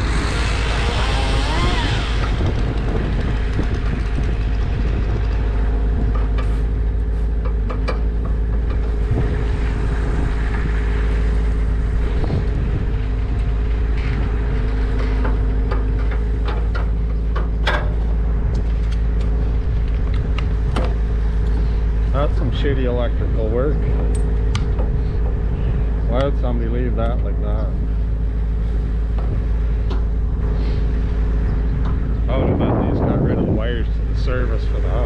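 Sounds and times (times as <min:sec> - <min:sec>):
large engine running: 0:00.0 - 0:35.0
clicks and knocks: 0:14.0 - 0:21.0.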